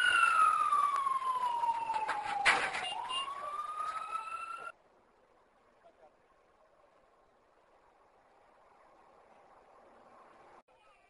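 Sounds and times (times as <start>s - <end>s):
emergency vehicle siren wailing: 0.0s - 4.8s.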